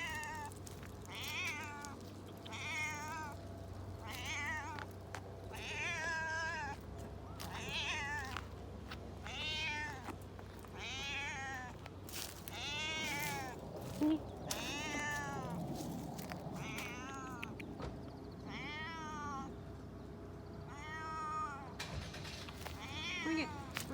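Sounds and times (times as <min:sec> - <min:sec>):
cat meowing: 0:01.1 - 0:03.4, 0:04.0 - 0:04.9, 0:05.5 - 0:08.5, 0:09.2 - 0:11.8, 0:12.5 - 0:15.8, 0:16.5 - 0:17.7, 0:18.4 - 0:19.5, 0:20.7 - 0:21.7, 0:22.8 - 0:23.9.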